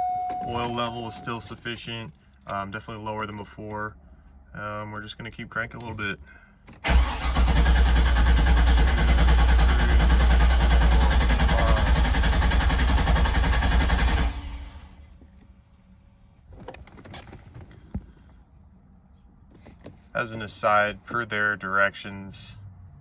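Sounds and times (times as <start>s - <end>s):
car starter cranking engine: 6.7s - 15.0s.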